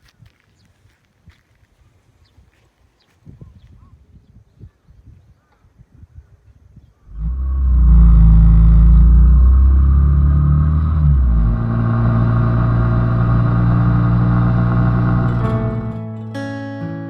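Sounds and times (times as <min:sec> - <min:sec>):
engine running: 0:07.1 - 0:16.3.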